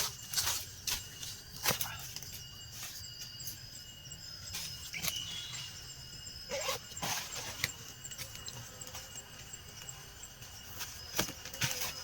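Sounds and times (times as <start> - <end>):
high insect calls: 0.0 - 12.0.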